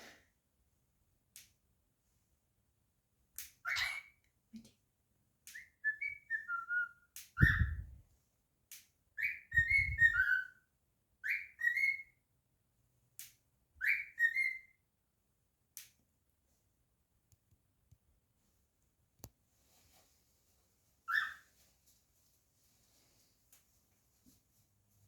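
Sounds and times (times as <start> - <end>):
cockatiel whistling: 3.7 - 4.1, 5.5 - 7.9, 9.2 - 10.6, 11.2 - 12.1, 13.8 - 14.7, 21.1 - 21.4.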